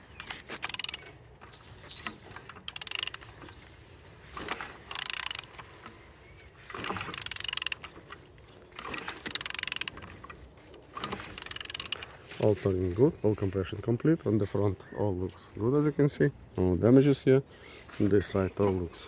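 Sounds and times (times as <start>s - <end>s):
ratchet wrench clicking: 0.2s - 1.1s, 1.9s - 3.3s, 4.4s - 6.0s, 6.7s - 8.0s, 8.8s - 10.1s, 11.0s - 12.0s.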